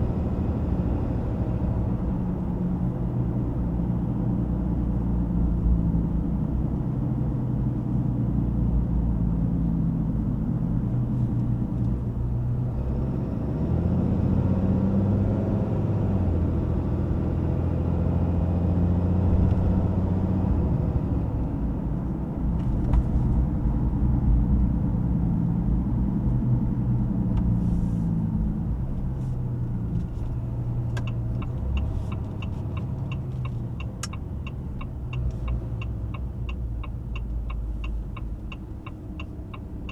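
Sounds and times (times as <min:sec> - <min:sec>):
diesel truck engine driving: 0:00.0 - 0:39.9
road rumble: 0:00.0 - 0:39.9
regular ticking: 0:30.9 - 0:39.9.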